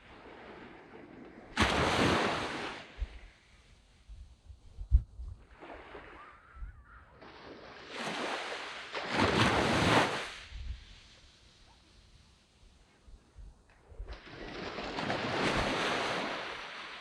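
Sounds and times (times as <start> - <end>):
sea wave breaking on beach: 0.1 - 3.4, 7.2 - 12.1, 14.0 - 17.0
wind buffeting microphone: 4.0 - 7.2, 10.4 - 11.1.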